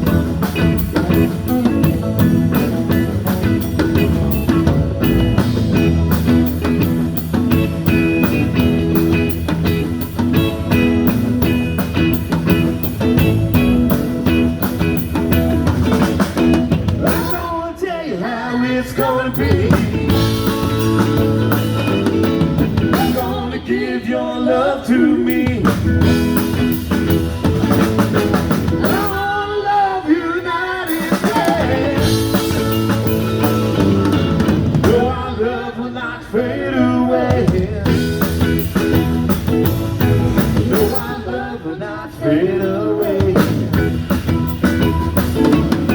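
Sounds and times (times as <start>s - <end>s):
drum kit beat: 0.0s - 17.7s, 19.0s - 23.5s, 25.2s - 29.5s, 30.9s - 35.2s, 37.3s - 41.3s, 43.0s - 45.9s
electric guitar: 0.0s - 17.7s, 18.4s - 23.7s, 25.1s - 45.9s
person singing: 17.0s - 21.1s, 22.8s - 26.2s, 28.5s - 33.0s, 40.3s - 44.1s.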